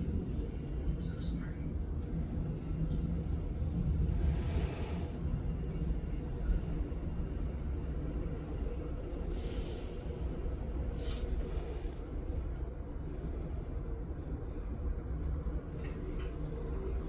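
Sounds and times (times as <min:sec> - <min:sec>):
torch flame rumbling: 0:03.7 - 0:05.6.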